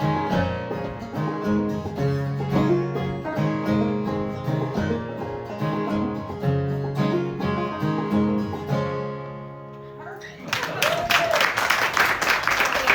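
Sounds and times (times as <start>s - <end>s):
banjo and acoustic guitar playing: 0.0s - 10.2s.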